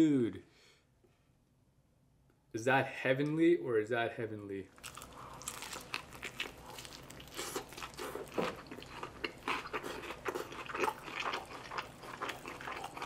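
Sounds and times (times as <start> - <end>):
chewing crispy food: 4.8 - 13.0.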